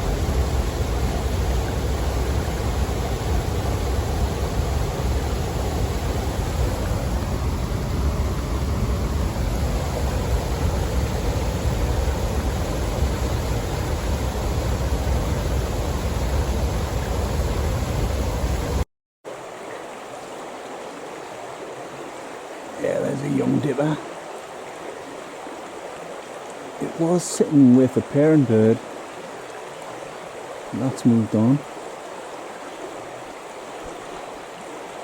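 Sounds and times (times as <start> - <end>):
waterfall rushing: 0.0 - 18.8
river flowing: 0.0 - 35.0.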